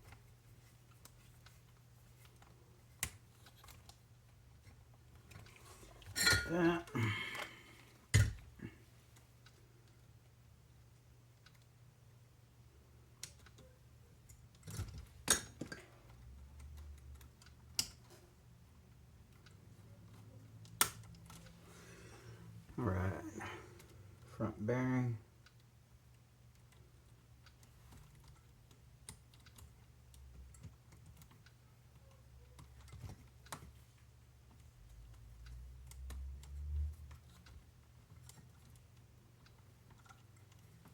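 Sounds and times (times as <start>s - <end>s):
small parts and tools clinking: 5.3s - 7.5s
small parts and tools clicking: 13.1s - 18.3s, 25.4s - 33.8s, 34.4s - 40.9s.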